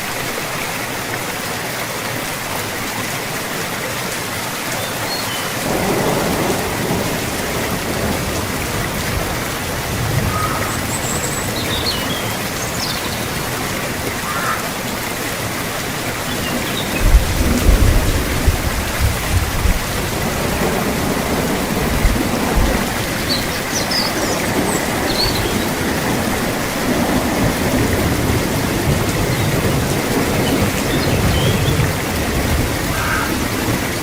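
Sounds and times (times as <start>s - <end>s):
heavy rain: 0.0s - 34.0s
rolling thunder: 5.6s - 13.2s, 16.2s - 34.0s.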